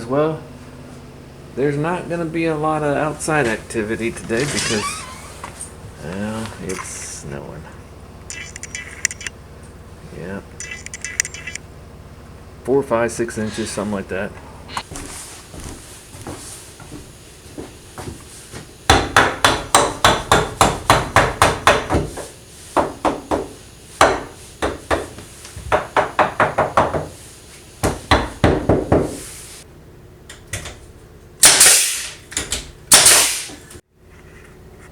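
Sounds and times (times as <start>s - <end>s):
hammer driving nails into wood: 31.4s - 33.6s.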